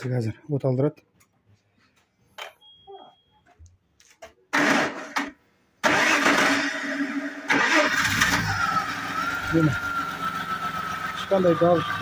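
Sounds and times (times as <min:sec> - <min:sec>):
starter motor cranking: 0:05.8 - 0:06.7
car engine running: 0:07.9 - 0:12.0.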